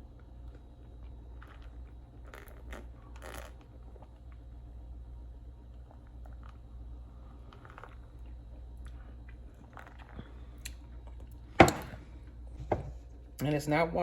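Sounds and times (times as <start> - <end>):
person sipping and swallowing: 1.0 - 4.4, 7.3 - 12.0.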